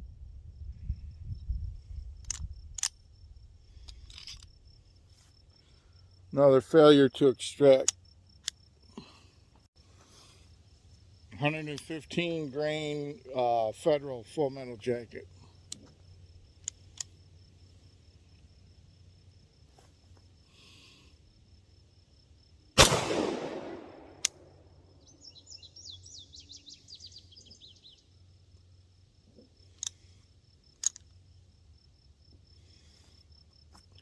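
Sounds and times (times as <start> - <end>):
pistol shot with echo: 22.8 - 24.4
bird chirping: 25.0 - 28.2.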